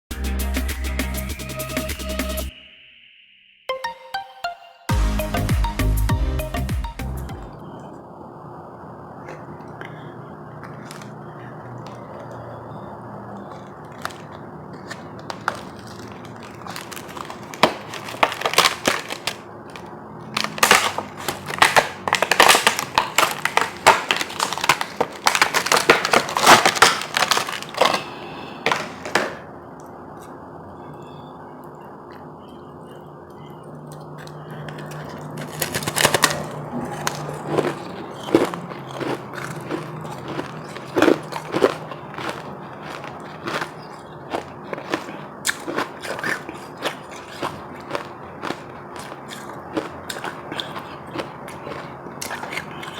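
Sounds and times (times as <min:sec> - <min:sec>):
low background hum: 0:05.6 - 0:52.9
ice crackling and cracking: 0:13.3 - 0:29.2, 0:34.2 - 0:52.9.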